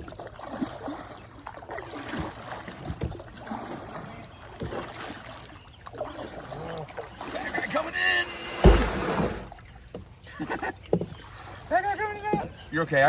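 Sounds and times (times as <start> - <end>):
water trickling and sloshing: 0.0 - 13.0
sharp knocks: 8.4 - 9.5.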